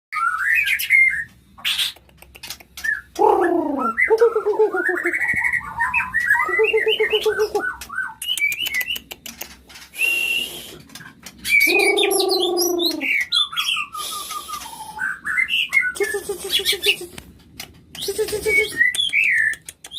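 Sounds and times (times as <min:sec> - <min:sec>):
bird singing whistled notes: 0:02.9 - 0:09.0, 0:10.0 - 0:10.8, 0:11.4 - 0:16.8, 0:18.0 - 0:19.7.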